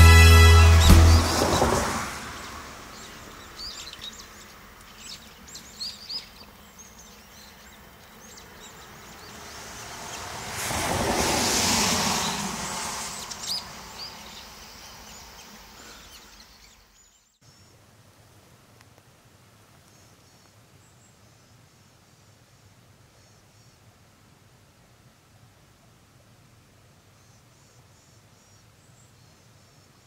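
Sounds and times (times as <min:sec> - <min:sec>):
outdoor ambience: 0:00.0 - 0:30.0
small birds chirping: 0:02.4 - 0:10.2, 0:13.0 - 0:17.8.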